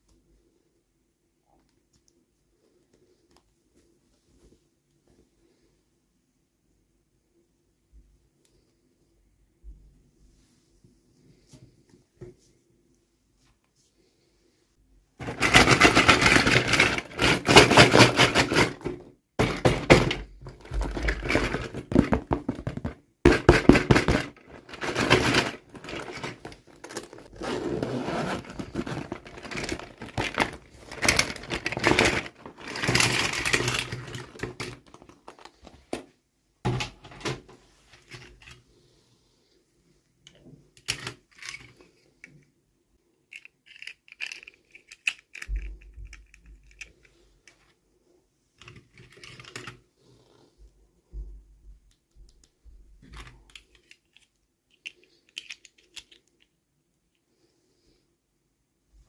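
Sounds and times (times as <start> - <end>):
packaging crackling and scraping: 15.2 - 35.8.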